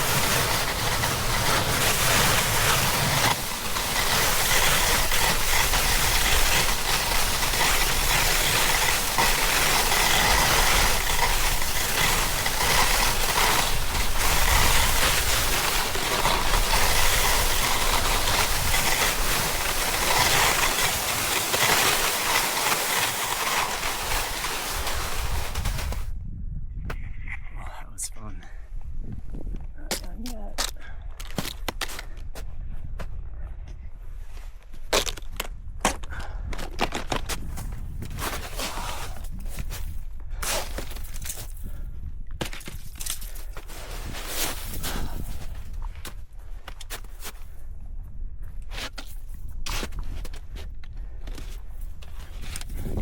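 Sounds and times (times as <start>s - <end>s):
snowboard scraping on snow: 0.0s - 26.1s, 37.6s - 41.1s, 43.6s - 45.8s, 51.4s - 53.0s
wind rumbling on microphone: 23.1s - 34.7s, 35.4s - 53.0s.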